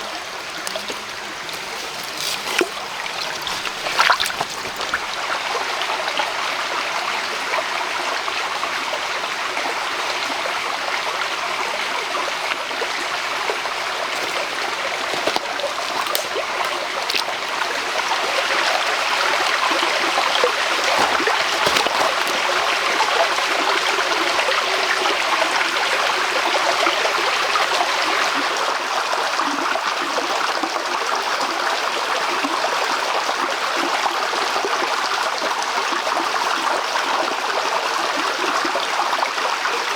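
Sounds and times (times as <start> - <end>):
stream flowing: 0.0 - 25.1.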